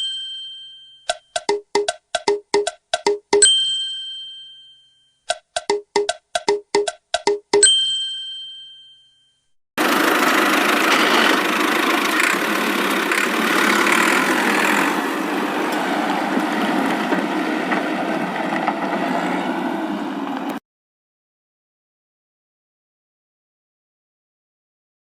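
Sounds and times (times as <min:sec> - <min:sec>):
vehicle engine running: 0:09.8 - 0:20.6.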